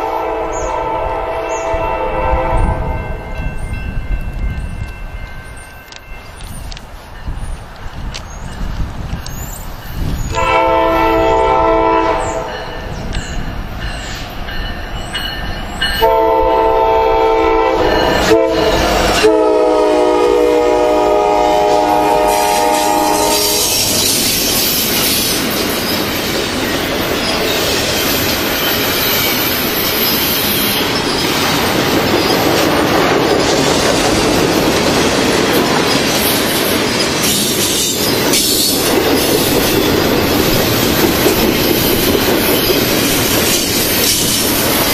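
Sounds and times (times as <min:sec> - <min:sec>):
locomotive air horn blasts: 0:00.0 - 0:03.2, 0:10.3 - 0:12.7, 0:16.0 - 0:23.9
train wheels rushing on rails: 0:00.0 - 0:44.9.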